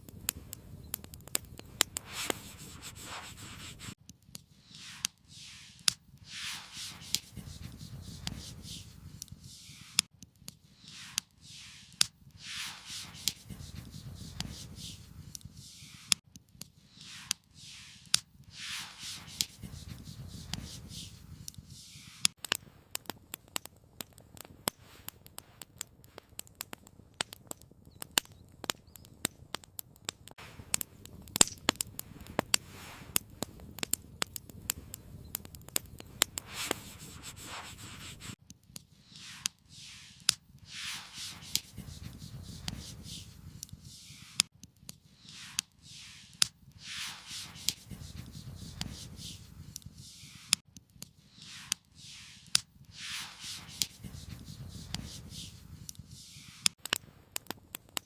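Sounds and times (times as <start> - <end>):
crackling and sharp snaps: 0.0 - 58.0
rasping scraping strokes: 2.0 - 4.0, 4.6 - 10.1, 10.8 - 16.2, 16.9 - 22.4, 35.8 - 38.4, 39.0 - 44.5, 45.2 - 50.6, 51.4 - 56.8.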